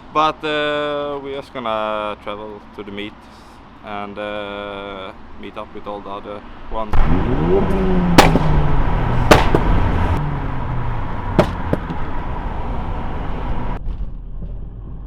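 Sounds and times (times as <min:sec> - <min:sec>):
loud sharp exhaust pops: 0:06.9 - 0:12.8
car engine revving: 0:06.9 - 0:13.8.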